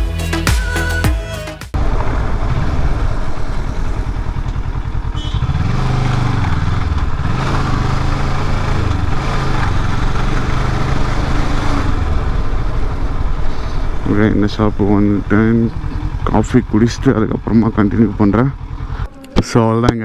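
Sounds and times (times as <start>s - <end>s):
motorcycle engine running: 3.4s - 19.1s.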